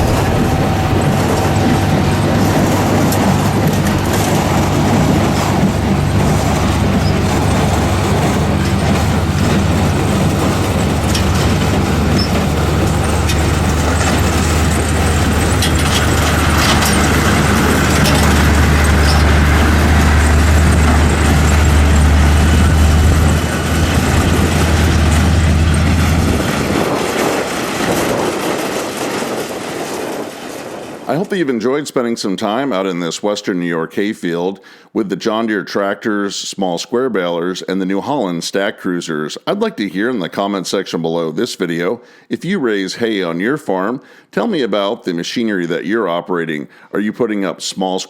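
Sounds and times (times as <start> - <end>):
mechanical clicks and rattles: 0.0 - 30.2
heavy diesel machinery engine drone: 0.0 - 31.1.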